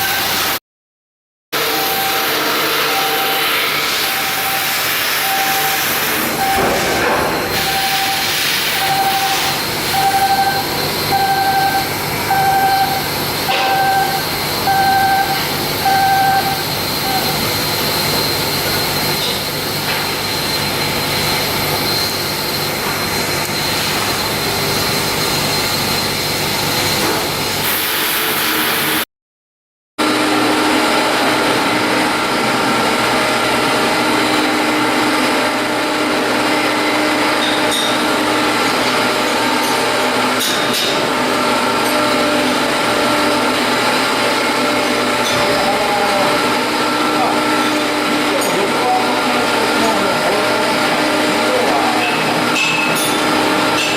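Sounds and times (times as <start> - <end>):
shipyard machinery noise: 0.0 - 0.6, 1.6 - 29.0, 30.0 - 53.9
warning beeper: 1.6 - 19.1
machine hum with held tone: 1.6 - 27.6.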